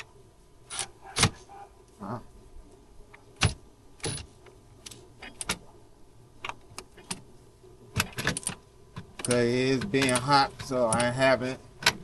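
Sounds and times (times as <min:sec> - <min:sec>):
tools clicking and knocking: 0:07.9 - 0:11.2.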